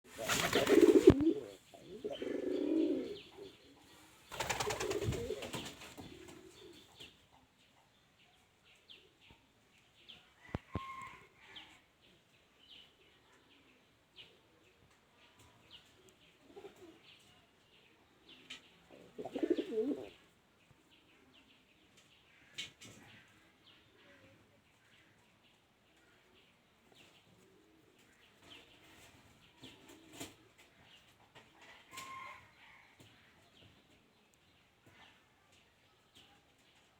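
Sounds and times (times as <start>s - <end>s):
wings flapping: 0.1s - 1.2s, 4.3s - 6.2s
pigeons cooing: 0.2s - 3.6s, 4.4s - 5.5s, 19.0s - 20.2s.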